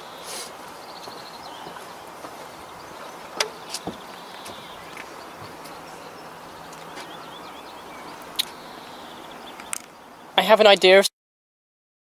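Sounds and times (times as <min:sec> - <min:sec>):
sharp clicks or knocks: 0:03.4 - 0:04.5.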